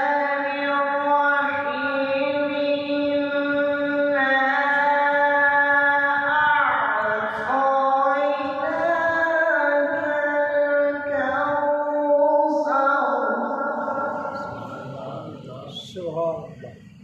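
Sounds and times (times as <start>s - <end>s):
man reciting melodically: 13.9s - 16.8s.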